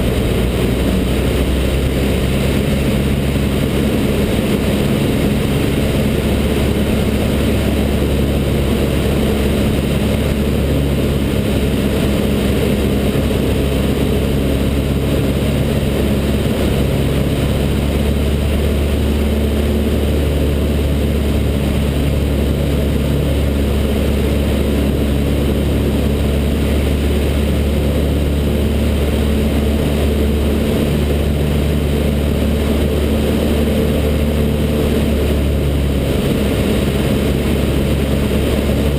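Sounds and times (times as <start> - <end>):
propeller plane engine drone: 0.0 - 38.9.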